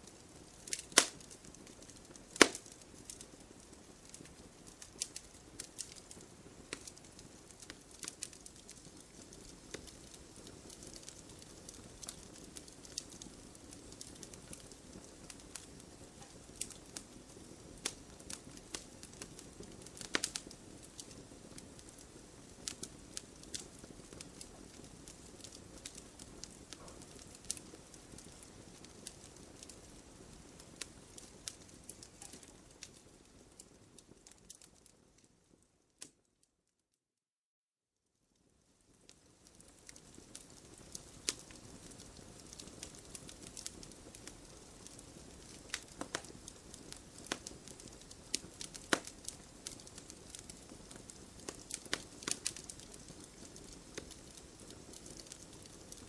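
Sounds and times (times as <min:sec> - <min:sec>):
wood fire hissing: 0:00.0 - 0:35.6, 0:38.9 - 0:56.0
fire crackles and pops: 0:00.0 - 0:36.5, 0:38.2 - 0:56.0.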